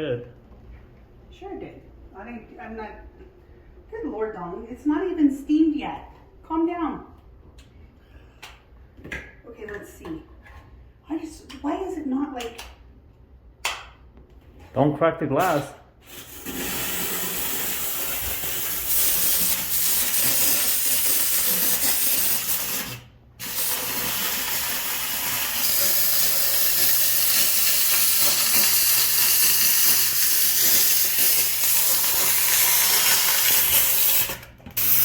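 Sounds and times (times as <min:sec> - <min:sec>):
steam cleaner hissing: 0:15.6 - 0:35.0.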